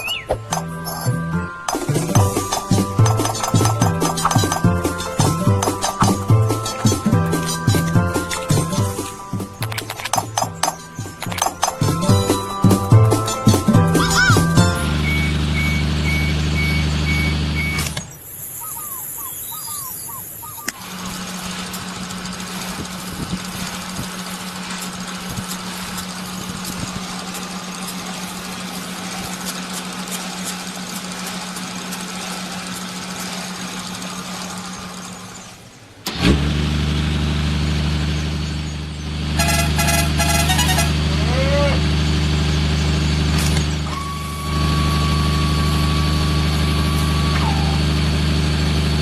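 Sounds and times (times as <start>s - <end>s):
motor humming: 0.0s - 49.0s
small scattered clicks: 9.1s - 12.0s
single-pitched hum: 43.3s - 49.0s.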